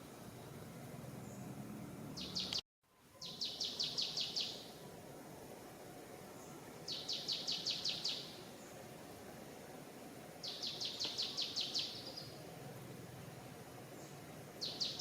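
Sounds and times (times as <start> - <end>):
forest ambience hiss: 0.0 - 15.0
bird chirping: 2.1 - 4.8, 6.4 - 8.8, 10.4 - 12.4, 14.0 - 15.0.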